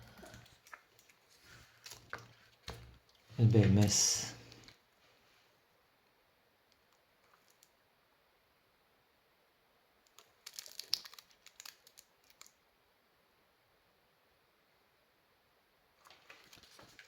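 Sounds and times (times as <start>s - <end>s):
plastic wrapping crackling: 10.1s - 12.5s, 16.1s - 17.0s.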